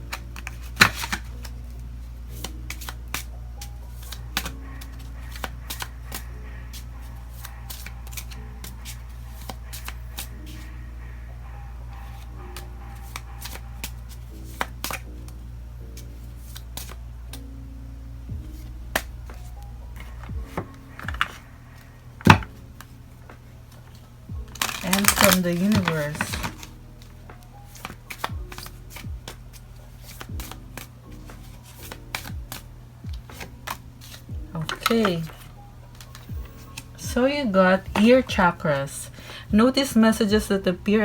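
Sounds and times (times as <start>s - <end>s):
cards shuffling and snapping: 0.0s - 10.7s, 11.9s - 15.4s, 16.0s - 17.5s, 18.4s - 39.4s
soft background music: 0.0s - 41.0s
deep kick drum: 18.3s - 19.5s, 20.1s - 21.4s, 22.2s - 22.6s, 24.3s - 25.2s, 28.3s - 29.6s, 30.3s - 30.8s, 32.3s - 33.7s, 34.3s - 34.6s, 36.3s - 37.2s, 37.9s - 38.5s, 40.3s - 40.5s.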